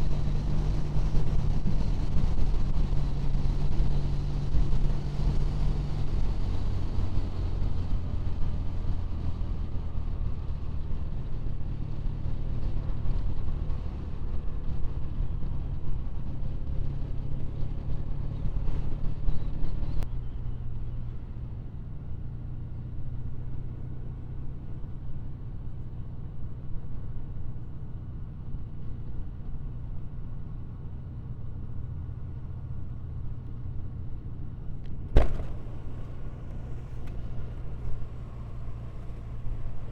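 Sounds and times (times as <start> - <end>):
road and wind noise: 0.0 - 39.9
motorcycle engine running: 35.1 - 39.9.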